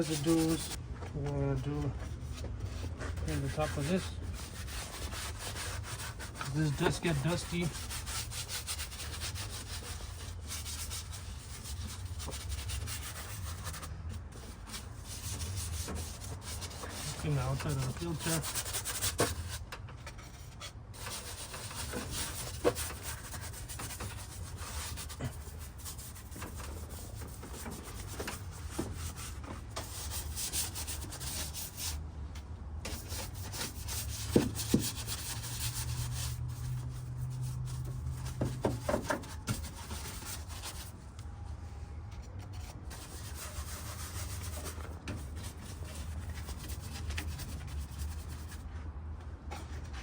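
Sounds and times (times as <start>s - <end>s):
bristle brush scrubbing: 0.0s - 0.8s, 2.7s - 13.7s.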